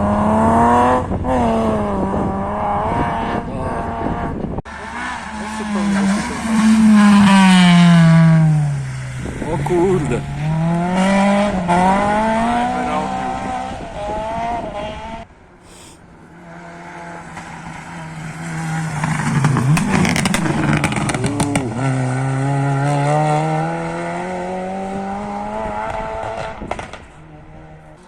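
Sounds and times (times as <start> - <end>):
rally car engines at full throttle: 0.0 - 28.0
gear changes: 15.9 - 24.5.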